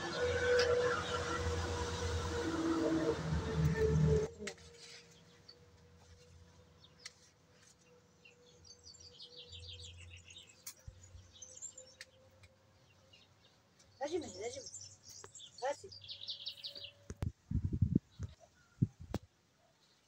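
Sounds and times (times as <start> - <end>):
small birds chirping: 4.8 - 17.3.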